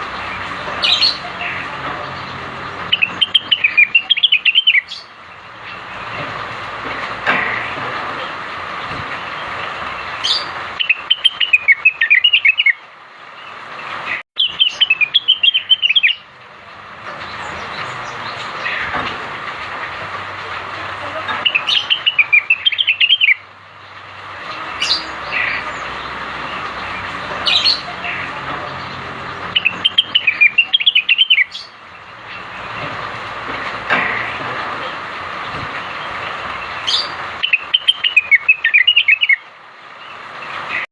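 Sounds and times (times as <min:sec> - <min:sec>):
bird chattering song: 0:00.0 - 0:06.2, 0:09.5 - 0:12.8, 0:14.4 - 0:16.3, 0:20.8 - 0:32.9, 0:35.9 - 0:40.8.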